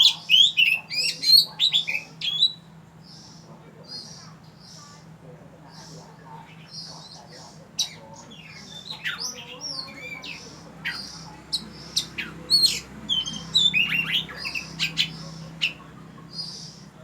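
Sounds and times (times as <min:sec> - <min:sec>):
bird singing whistled notes: 0:00.0 - 0:03.4, 0:08.4 - 0:16.8
faint steady low hum: 0:00.0 - 0:17.0.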